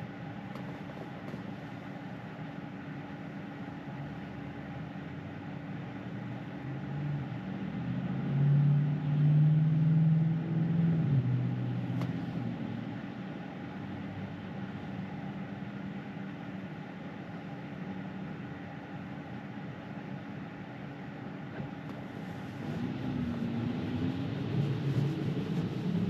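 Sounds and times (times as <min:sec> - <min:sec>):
road and tyre noise in car cabin: 0:00.0 - 0:26.0.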